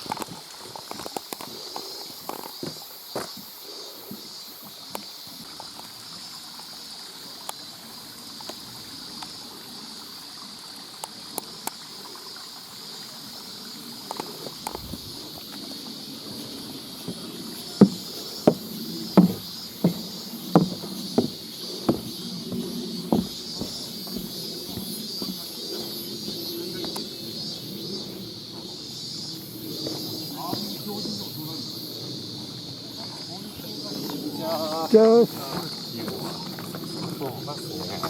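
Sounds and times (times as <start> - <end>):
running water hiss: 0.0 - 38.0
footsteps on wet trail: 14.1 - 31.0.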